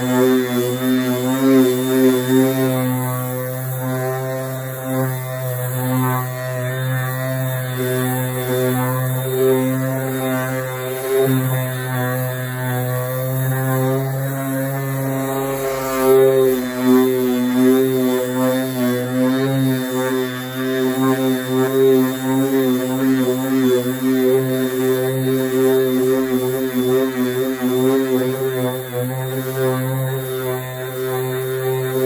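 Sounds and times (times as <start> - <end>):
power sander drone: 0.0 - 32.0.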